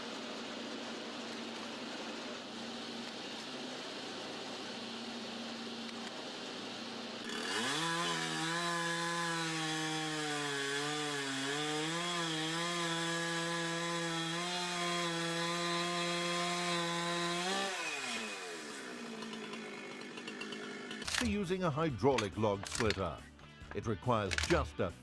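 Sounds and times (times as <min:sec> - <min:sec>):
chainsaw cutting wood: 0:07.2 - 0:23.1, 0:24.2 - 0:24.6.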